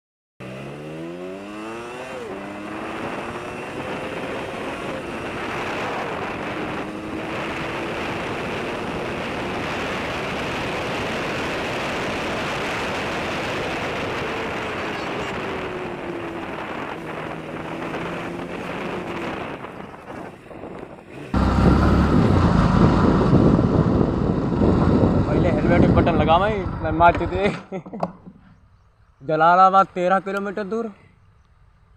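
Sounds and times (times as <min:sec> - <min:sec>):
motorcycle engine cruising: 0:00.4 - 0:29.2
wind noise on microphone: 0:01.6 - 0:27.7
low engine rumble: 0:21.2 - 0:27.7.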